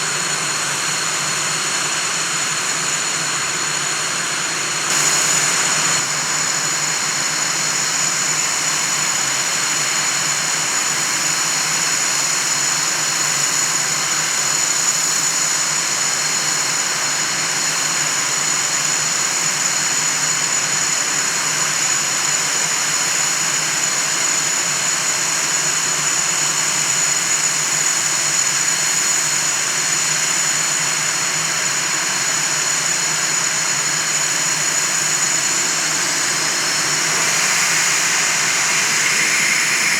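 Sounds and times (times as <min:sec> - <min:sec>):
jet engine roar: 0:04.9 - 0:08.3, 0:34.7 - 0:39.9
high-pitched jet whine: 0:04.9 - 0:10.1, 0:33.8 - 0:39.9.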